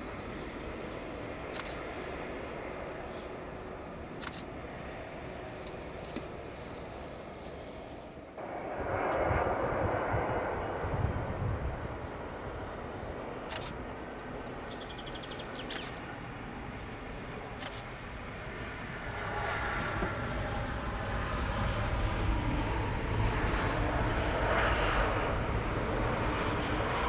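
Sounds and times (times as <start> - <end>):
jet engine rumble and whine: 0.0 - 27.0
sharp clicks: 1.5 - 1.8, 4.1 - 4.5, 13.5 - 13.8, 15.6 - 16.0, 17.6 - 17.9.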